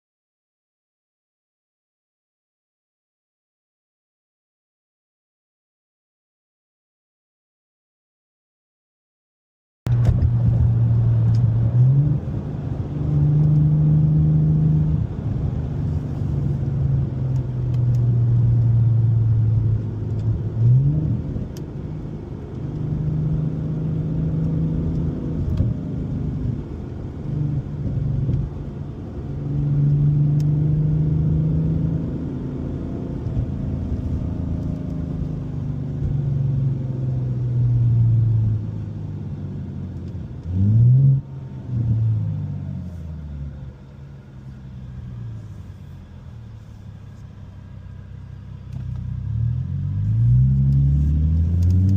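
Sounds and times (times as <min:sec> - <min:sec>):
engine revving: 0:09.9 - 0:39.2, 0:40.0 - 0:43.3, 0:48.7 - 0:51.9
car exhaust while driving: 0:09.9 - 0:51.9.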